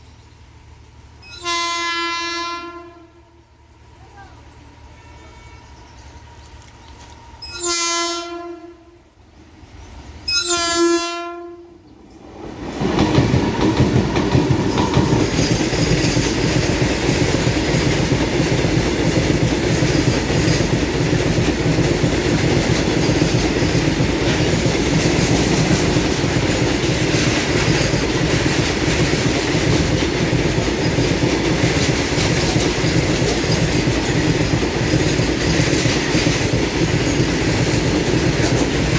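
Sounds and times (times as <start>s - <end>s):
freight train rumble: 0.0s - 38.9s
locomotive horn blasts: 1.2s - 3.4s, 7.3s - 9.1s, 10.3s - 11.8s
wheels clacking over rail joints: 12.1s - 38.9s.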